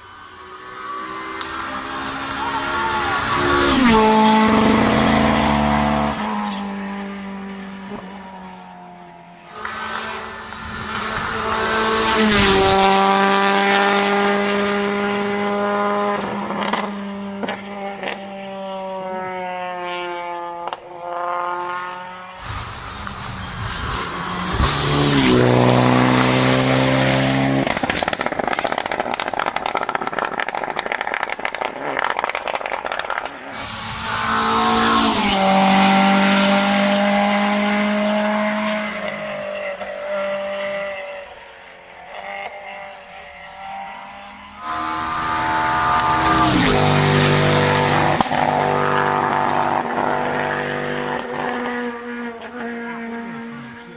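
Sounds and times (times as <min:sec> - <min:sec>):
rally car engines revving: 0:00.0 - 0:53.9
rushing noise: 0:22.4 - 0:27.0, 0:44.6 - 0:48.8.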